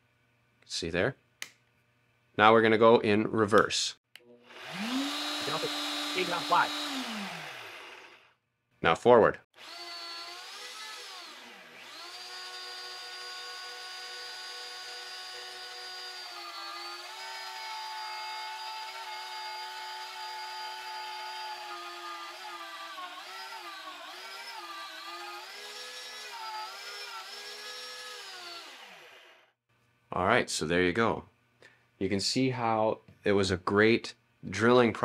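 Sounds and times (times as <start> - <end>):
drill press motor whine: 4.5 - 8.3.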